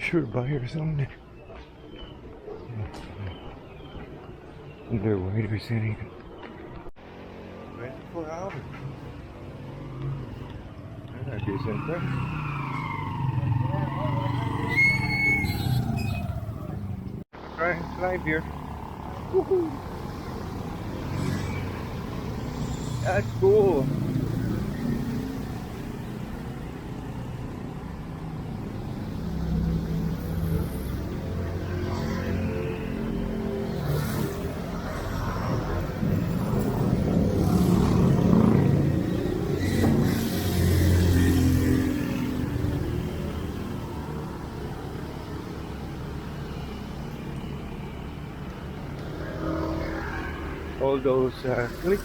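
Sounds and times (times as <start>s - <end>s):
street traffic rumble: 0.0s - 52.0s
vehicle engine passing close: 11.3s - 52.0s.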